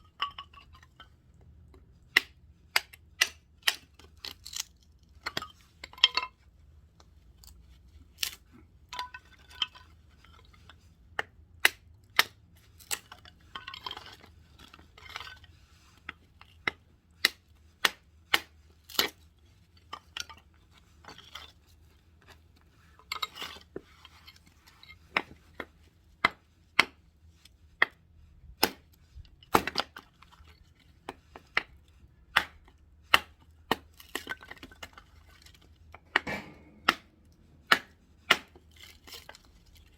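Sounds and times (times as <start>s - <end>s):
axe chopping firewood: 2.1s - 4.7s, 11.2s - 13.0s, 16.6s - 19.2s, 25.1s - 27.0s, 28.6s - 28.8s, 29.4s - 30.0s, 31.1s - 39.4s.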